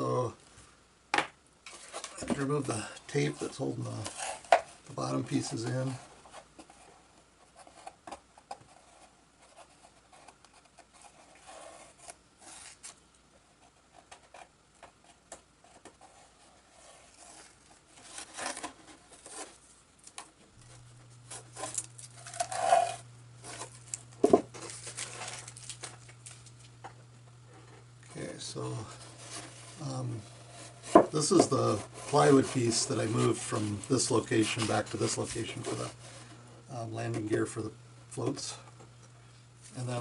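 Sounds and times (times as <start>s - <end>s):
low steady hum: 0.0s - 40.0s
handling noises: 14.0s - 37.4s
tape being peeled off: 17.1s - 26.8s.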